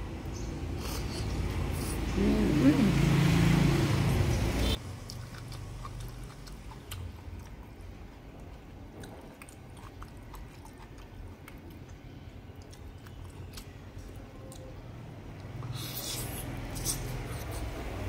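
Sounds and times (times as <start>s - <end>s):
person chewing food: 4.8s - 17.8s.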